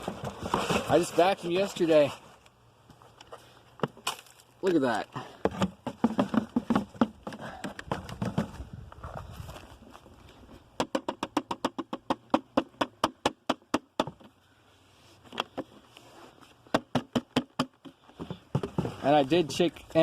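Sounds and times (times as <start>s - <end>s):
sharp plastic knocks: 10.8s - 14.3s, 16.7s - 18.9s.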